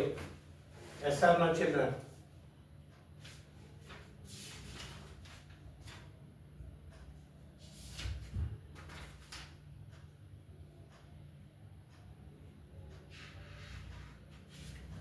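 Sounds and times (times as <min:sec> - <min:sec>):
low electrical hum: 0:00.0 - 0:15.0
writing on a board: 0:12.9 - 0:15.0.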